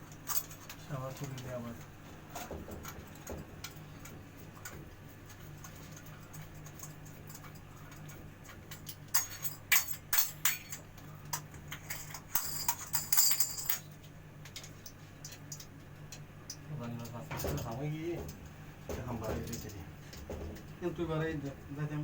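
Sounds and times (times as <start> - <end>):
steady low hum: 0.0 - 22.0
metal tools clinking: 8.7 - 10.8, 11.7 - 13.9
jingling rattle: 12.0 - 13.9.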